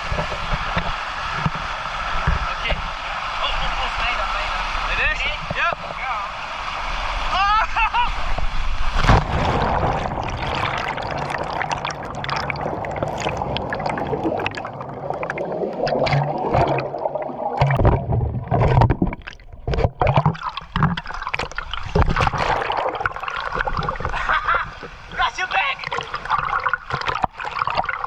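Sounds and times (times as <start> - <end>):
waterfall rushing and splashing: 0.0 - 8.4.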